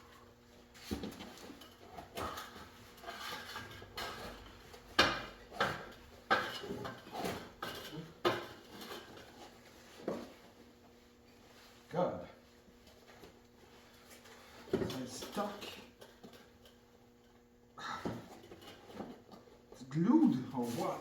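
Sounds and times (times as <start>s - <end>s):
metallic clanks and scrapes: 1.2s - 4.9s.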